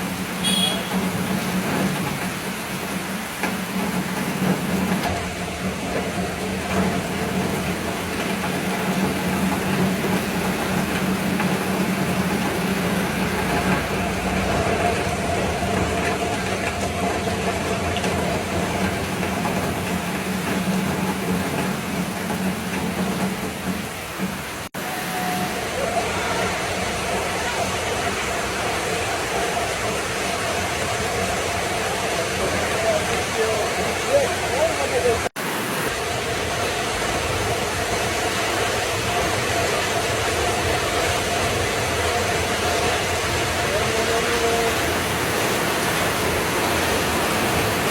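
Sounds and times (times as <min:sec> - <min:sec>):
vehicle engine humming: 0:00.0 - 0:25.6
constant rushing noise: 0:00.0 - 0:47.9.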